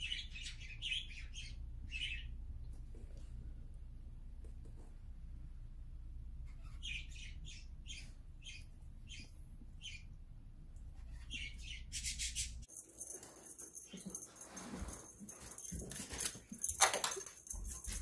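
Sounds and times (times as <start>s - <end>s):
small bird chirping: 0.0s - 2.4s, 6.5s - 10.2s, 11.0s - 14.3s.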